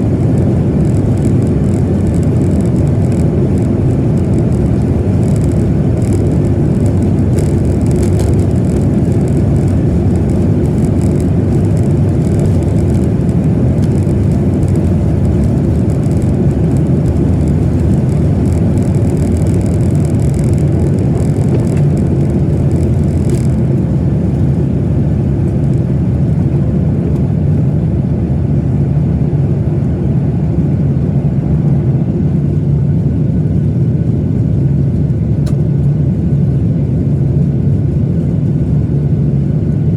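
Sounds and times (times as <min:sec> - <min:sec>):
airplane cabin engine roar: 0:00.0 - 0:39.9.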